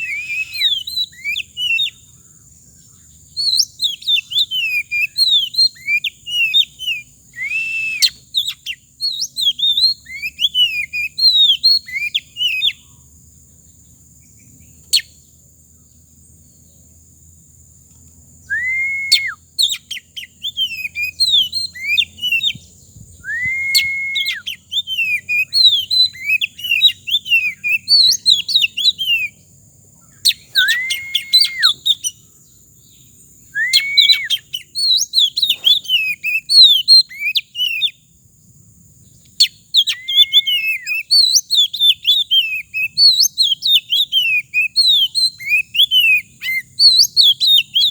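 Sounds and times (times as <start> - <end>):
bird drawn-out whistle: 0.0 - 2.0, 3.4 - 12.8, 18.4 - 29.3, 30.1 - 32.2, 33.5 - 37.9, 39.4 - 47.9
songbird twittering chirps: 0.0 - 47.9.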